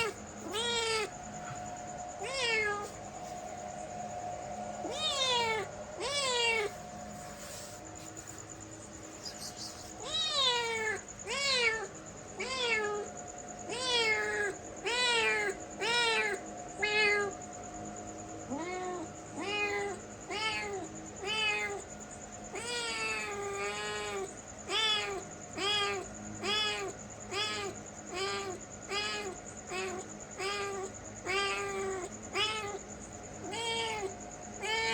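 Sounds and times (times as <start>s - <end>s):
cat meowing: 0.0s - 1.6s, 2.2s - 3.0s, 4.8s - 6.8s, 9.3s - 13.1s, 13.7s - 17.3s, 18.5s - 21.8s, 22.5s - 32.8s, 33.4s - 34.9s
faint steady hum: 0.0s - 34.9s.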